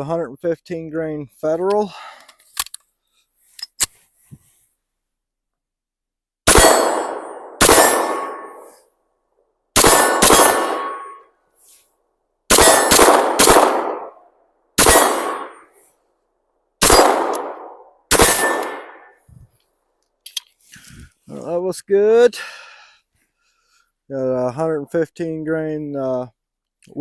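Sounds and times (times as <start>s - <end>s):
pistol shots ringing out: 6.5s - 8.7s, 9.8s - 11.2s, 12.5s - 14.2s, 14.8s - 15.7s, 16.8s - 19.2s.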